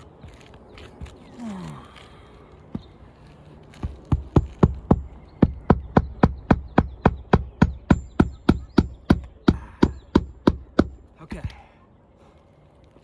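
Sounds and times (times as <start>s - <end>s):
hammer striking roofing nails: 3.8s - 11.0s.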